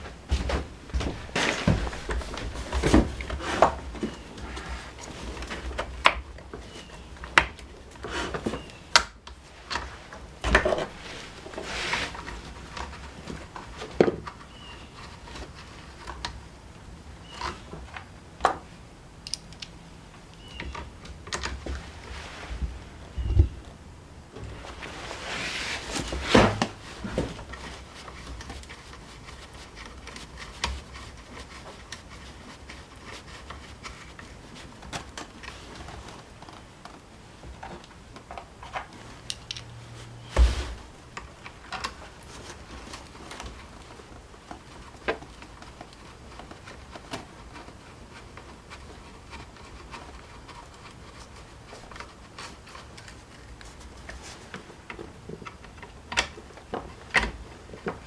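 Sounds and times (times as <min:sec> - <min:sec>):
tools and parts clicking and knocking: 0:17.3 - 0:21.8, 0:36.9 - 0:39.8.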